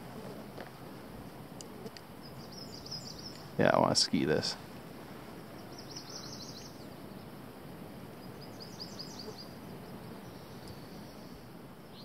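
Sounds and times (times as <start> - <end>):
faint outdoor hiss: 0.0 - 12.0
small songbird singing: 2.2 - 3.6, 5.5 - 7.4, 8.1 - 12.0.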